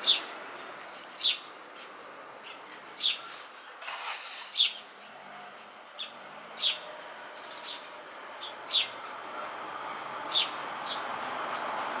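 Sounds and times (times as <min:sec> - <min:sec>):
sparrow chirping: 0:00.0 - 0:00.3, 0:01.1 - 0:03.4, 0:04.5 - 0:04.8, 0:05.9 - 0:09.1, 0:10.2 - 0:11.1.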